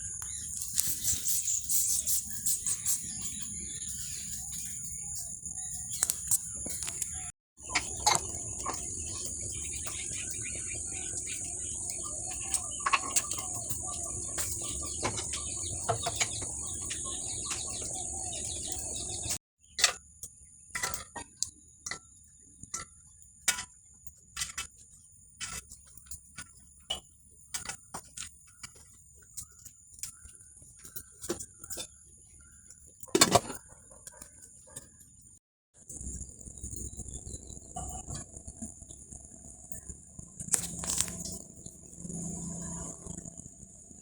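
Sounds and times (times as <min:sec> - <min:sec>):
bird calls: 0:00.0 - 0:19.4.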